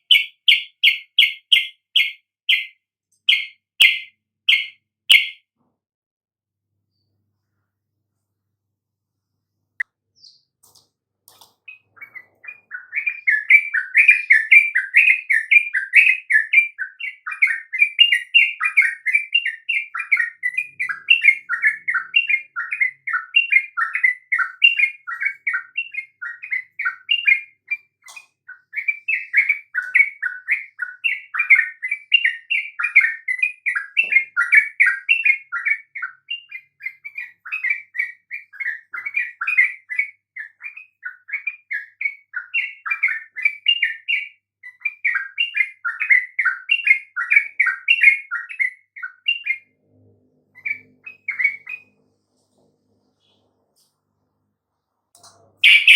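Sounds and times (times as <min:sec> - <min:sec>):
bird singing bubbly chattering notes: 0:11.7 - 0:44.2, 0:55.6 - 0:55.9.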